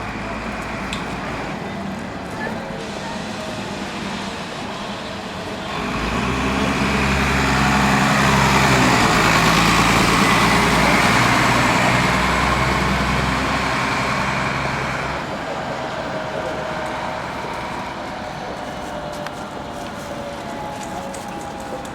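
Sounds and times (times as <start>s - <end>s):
bus diesel engine passing: 0.0s - 21.9s.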